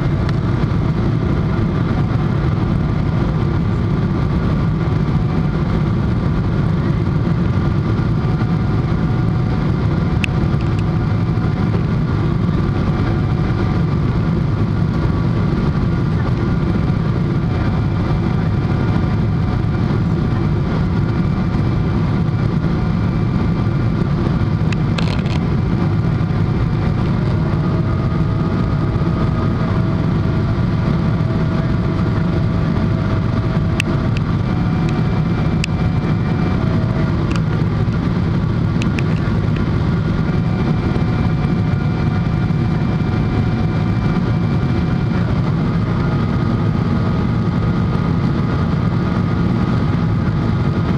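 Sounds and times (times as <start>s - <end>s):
jet cabin engine rumble: 0.0s - 50.9s.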